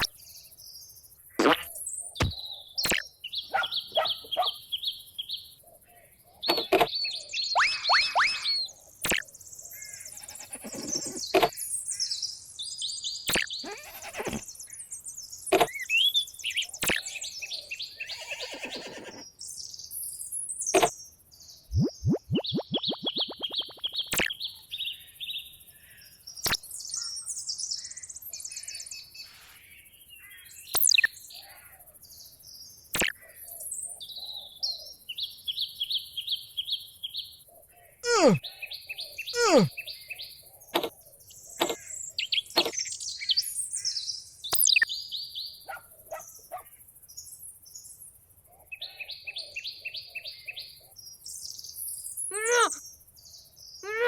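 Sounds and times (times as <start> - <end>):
bird chirping trills: 0.0 - 37.4, 38.0 - 46.6, 51.5 - 54.0
sharp clicks: 1.4 - 3.0, 9.0 - 9.2, 13.3 - 14.4, 16.8 - 17.0, 21.8 - 24.4, 44.6 - 44.8
falling whistle-like glides: 7.6 - 8.7.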